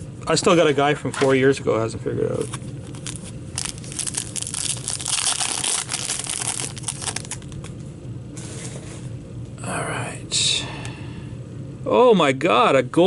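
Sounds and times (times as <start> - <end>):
card pack wrapper crinkling: 2.4 - 7.7.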